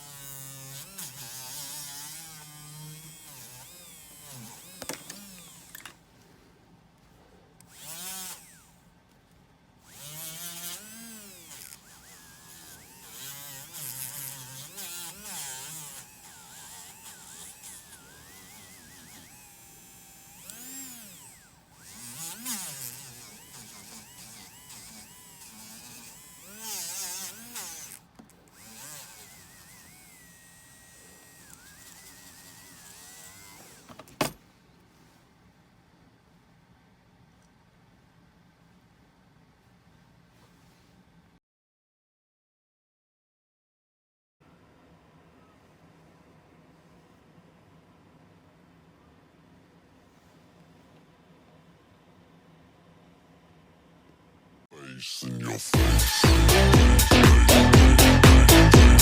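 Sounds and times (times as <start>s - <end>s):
electric rotary tool running: 0.0s - 5.9s, 7.7s - 8.8s, 9.8s - 28.0s, 28.6s - 34.3s, 55.8s - 59.0s.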